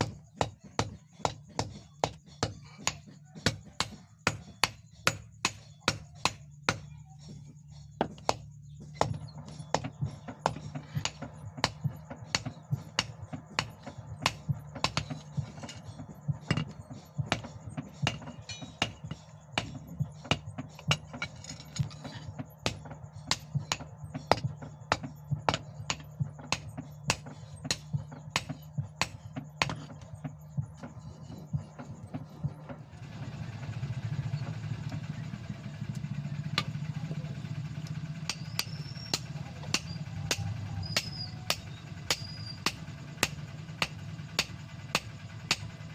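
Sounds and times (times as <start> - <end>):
motor hum: 0.0 - 45.9
hammer blows on hot steel: 35.7 - 45.9.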